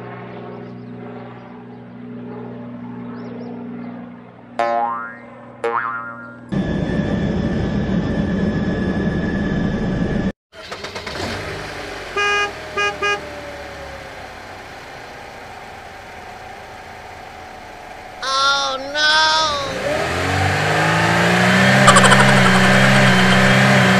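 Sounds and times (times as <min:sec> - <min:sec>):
low engine hum: 0:06.5 - 0:23.9
vehicle horn toots: 0:12.1 - 0:13.4.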